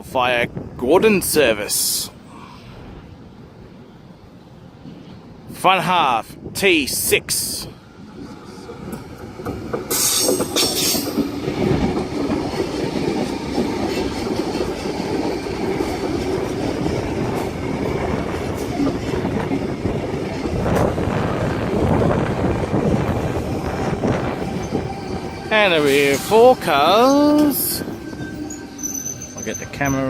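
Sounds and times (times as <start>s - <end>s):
train wheels rumbling on rails: 7.5s - 30.0s
wheels clacking over rail joints: 8.0s - 30.0s.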